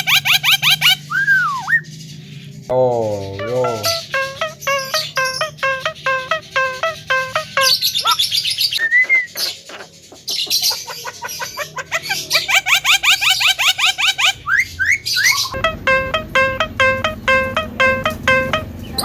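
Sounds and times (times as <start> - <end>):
bird chirping and whistling: 0.0 - 1.9, 3.3 - 9.8, 10.4 - 19.0
background music with beat: 3.4 - 7.7, 15.6 - 18.9.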